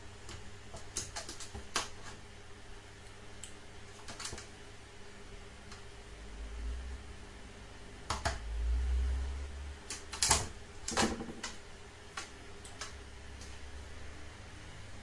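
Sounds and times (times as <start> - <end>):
faint low rumble: 4.9 - 9.9.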